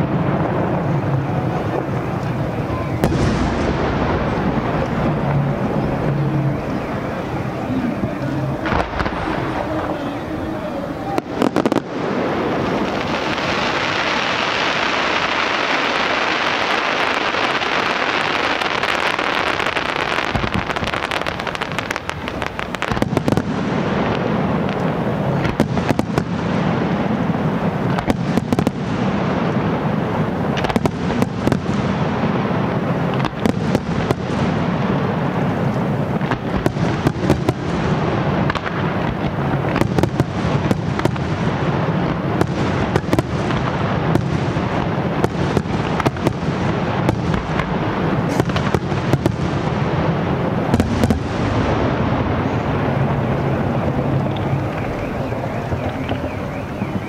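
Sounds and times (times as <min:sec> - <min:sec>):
low rumble: 0:00.0 - 0:12.9.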